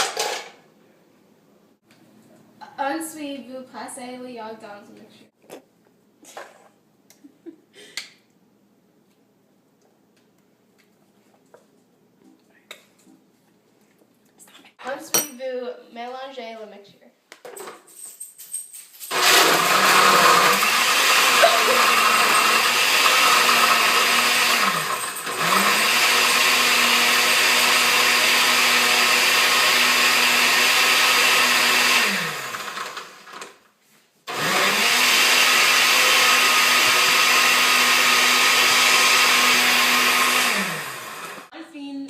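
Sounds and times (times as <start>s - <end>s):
electric blender running: 19.1s - 33.5s, 34.3s - 41.5s.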